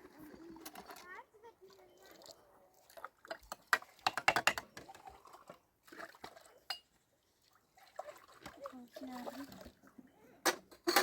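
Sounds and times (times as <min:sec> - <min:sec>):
hard objects clattering and clinking: 0:03.3 - 0:05.0.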